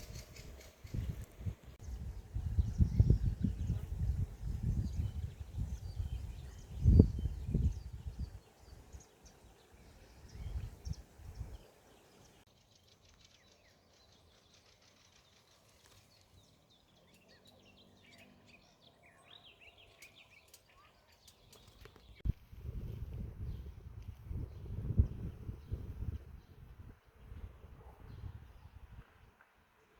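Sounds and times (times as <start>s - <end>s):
birds chirping and trilling: 0.0s - 22.2s.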